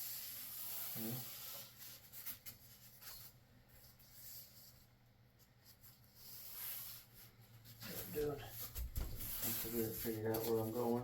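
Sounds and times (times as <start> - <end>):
scratching and rubbing on wood: 5.6 - 11.0.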